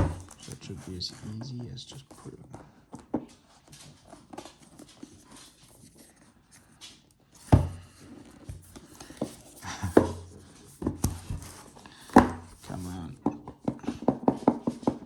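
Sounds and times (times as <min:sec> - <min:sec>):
sharp knocks on cardboard box: 0:00.0 - 0:00.4, 0:07.4 - 0:12.9
cardboard box rustling and scraping: 0:00.0 - 0:01.5, 0:07.4 - 0:13.2.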